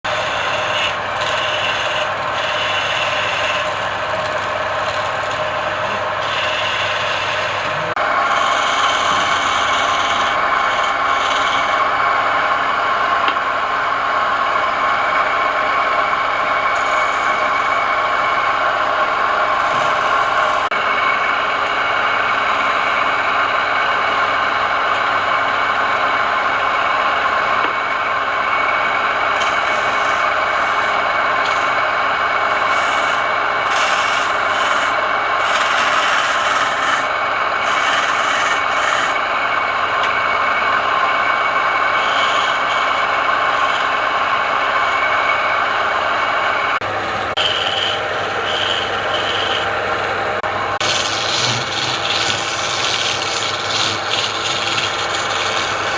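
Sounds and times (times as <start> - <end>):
turning tool scraping wood: 0.0 - 12.0, 15.2 - 21.2, 28.5 - 39.3, 41.4 - 45.5, 46.8 - 55.9
wood lathe motor whine: 0.0 - 55.9.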